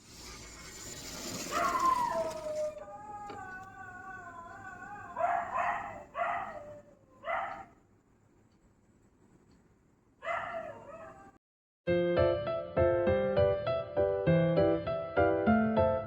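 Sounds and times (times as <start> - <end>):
dog barking: 5.1 - 7.8, 10.2 - 11.4.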